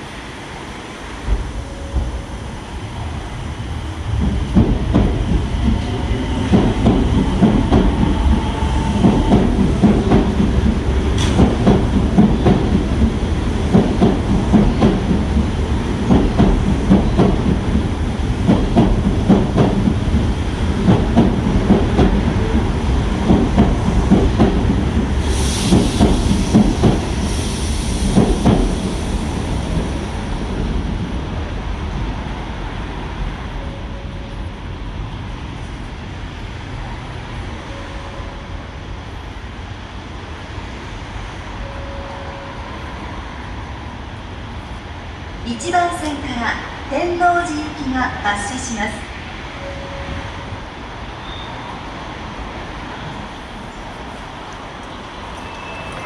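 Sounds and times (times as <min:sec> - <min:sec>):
train wheels clacking over rail joints: 0:04.2 - 0:27.3.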